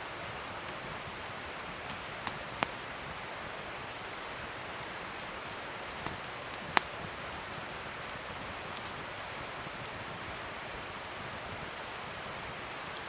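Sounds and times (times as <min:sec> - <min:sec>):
wood fire crackling: 0:00.0 - 0:13.0
sharp pops of fire: 0:01.8 - 0:03.1, 0:05.9 - 0:09.2.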